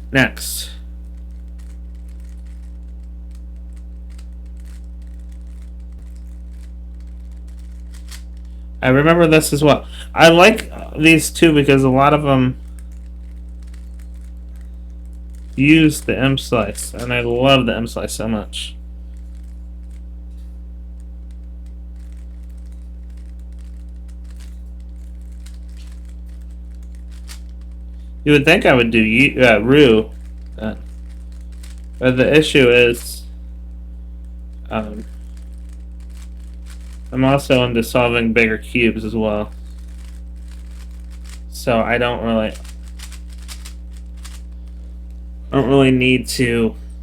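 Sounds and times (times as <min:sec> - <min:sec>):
low electrical hum: 0:00.0 - 0:47.0
puzzle cube layers clicking: 0:04.1 - 0:08.2, 0:42.5 - 0:44.4.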